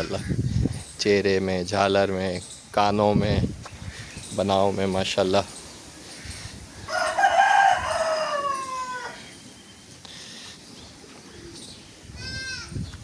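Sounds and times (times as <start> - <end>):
rooster crowing: 6.8 - 9.3.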